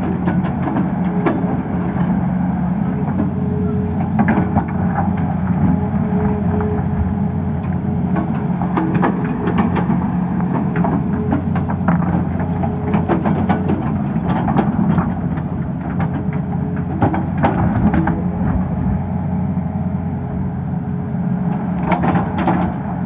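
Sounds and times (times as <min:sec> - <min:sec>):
excavator diesel engine running: 0:00.0 - 0:23.0
sharp knocks and clatter: 0:08.1 - 0:18.3, 0:21.8 - 0:22.8.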